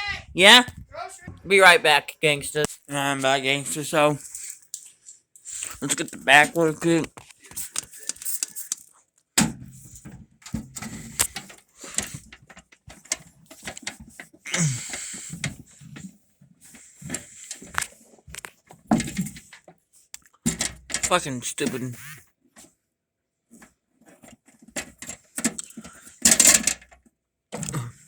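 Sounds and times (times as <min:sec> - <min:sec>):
parts clicking and rattling: 0:04.2 - 0:16.0, 0:17.0 - 0:21.8, 0:24.1 - 0:27.7
low grunts or mutters: 0:14.5 - 0:15.3, 0:27.6 - 0:28.0.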